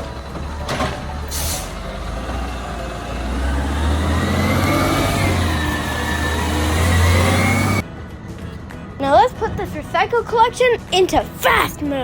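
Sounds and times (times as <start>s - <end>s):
truck engine revving: 0.0s - 7.8s.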